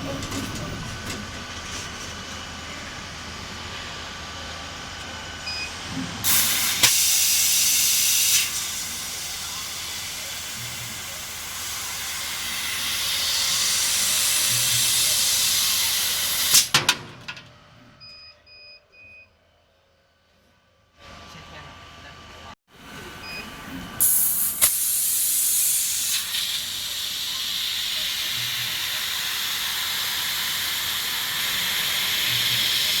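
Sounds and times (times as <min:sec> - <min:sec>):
laser cutter cutting metal: 0:06.2 - 0:16.7, 0:24.0 - 0:33.0
gas hissing: 0:06.2 - 0:16.8, 0:24.0 - 0:33.0.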